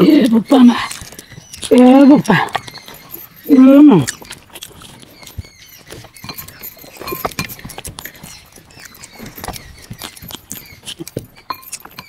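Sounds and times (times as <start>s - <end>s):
chewing: 0.0s - 12.0s
wet lip smacks and mouth clicks: 0.2s - 3.4s, 4.0s - 12.0s.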